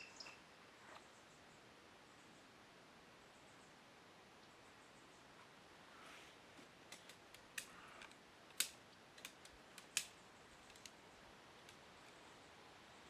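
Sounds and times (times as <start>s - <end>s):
tent gear clicks and snaps: 6.9s - 11.0s.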